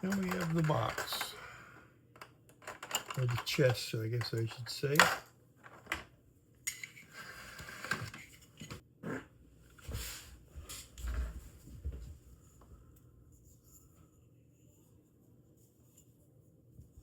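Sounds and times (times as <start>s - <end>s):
plastic parts clicking and knocking: 0.0s - 1.4s, 2.1s - 6.1s.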